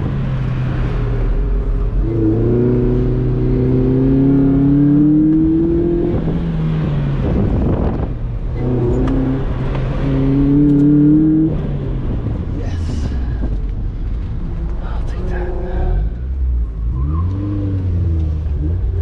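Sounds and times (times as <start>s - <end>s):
car engine accelerating hard: 0.0s - 19.0s.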